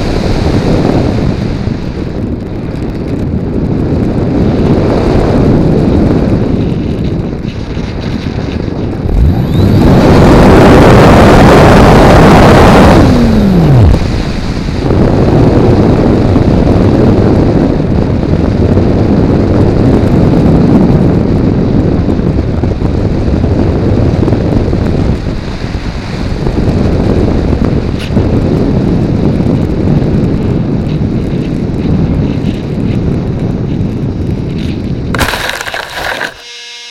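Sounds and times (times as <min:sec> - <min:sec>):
electric motor and propeller whine: 0:00.0 - 0:16.8, 0:30.6 - 0:36.9
wind rushing over microphone: 0:00.0 - 0:36.5.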